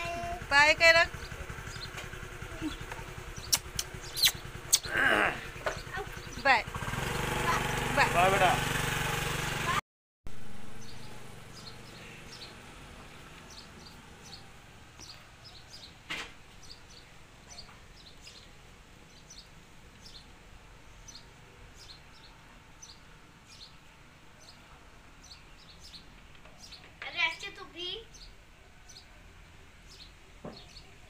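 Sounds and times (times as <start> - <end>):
small birds chirping: 0.0 - 6.9, 10.8 - 31.0
motor scooter engine: 0.0 - 16.0
sharp click: 3.5 - 4.9.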